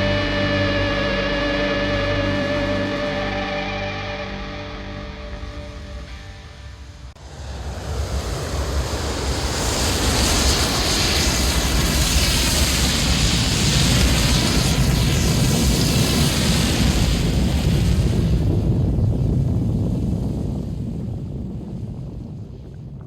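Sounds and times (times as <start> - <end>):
wind rushing over microphone: 7.2 - 23.0.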